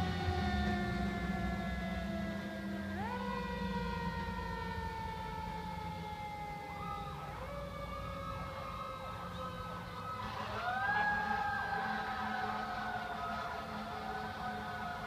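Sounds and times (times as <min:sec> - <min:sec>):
siren wailing: 0:00.0 - 0:15.0
truck engine rumble: 0:00.0 - 0:15.0.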